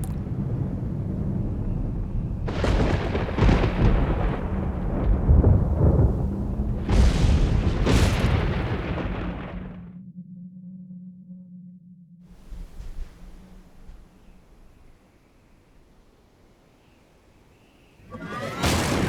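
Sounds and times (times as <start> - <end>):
deep continuous rumble: 0.0 - 10.2.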